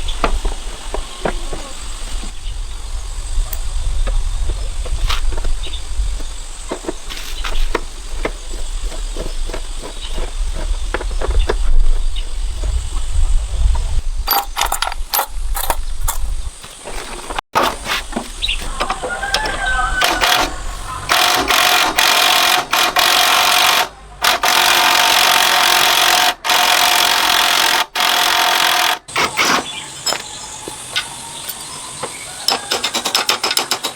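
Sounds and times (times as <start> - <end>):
metal knocks and clicks: 14.3 - 16.3, 31.5 - 33.9
power tool whining: 18.8 - 30.5.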